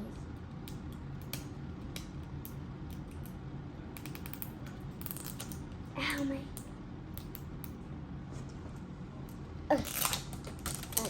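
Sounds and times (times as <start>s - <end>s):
plastic packaging clicks and crackles: 9.8s - 11.0s.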